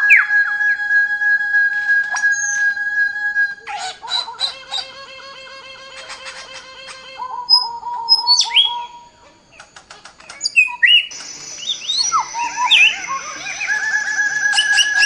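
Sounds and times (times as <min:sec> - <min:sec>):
birds chirping and calling: 0:03.7 - 0:05.0, 0:05.9 - 0:15.0.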